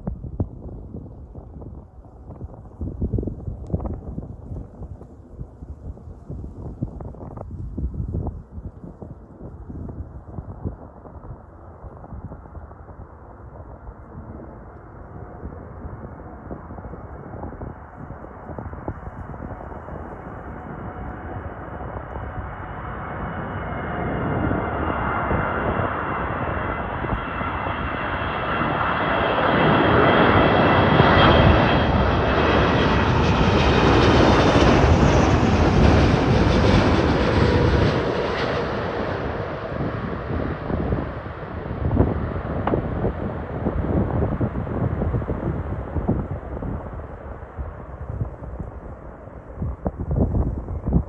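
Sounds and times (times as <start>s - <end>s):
jet engines passing overhead: 8.6s - 51.0s.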